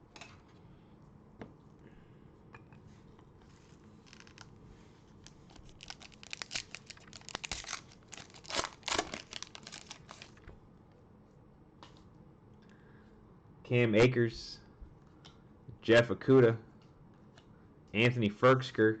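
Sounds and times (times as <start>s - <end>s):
card pack wrapper crinkling: 3.9s - 4.5s, 5.2s - 10.4s.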